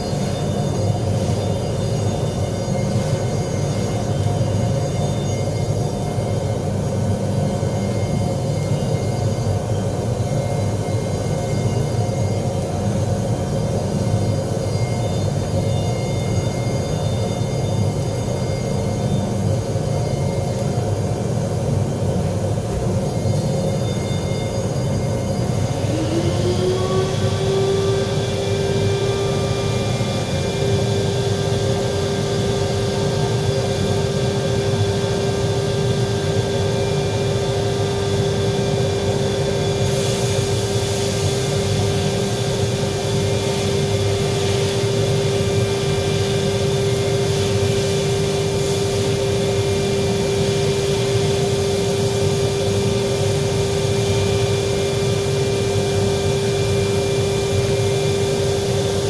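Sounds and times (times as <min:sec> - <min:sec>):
power tool motor whining: 0:25.5 - 0:30.8
bright hiss: 0:39.7 - 0:58.8.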